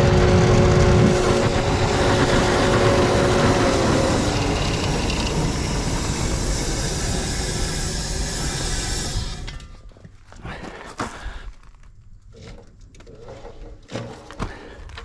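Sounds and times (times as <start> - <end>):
furnace burner rushing: 0.0 - 10.0.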